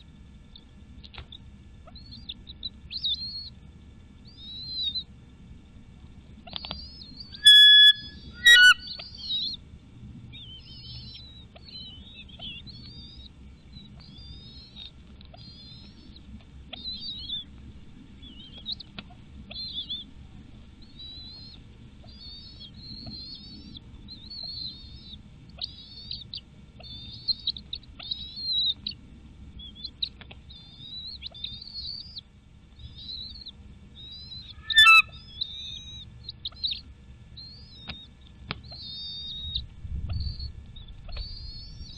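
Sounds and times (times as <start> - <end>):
eagle high squeaky chirps: 6.8 - 9.5, 34.1 - 36.0
eagle piercing calls: 6.8 - 9.6, 34.1 - 36.0.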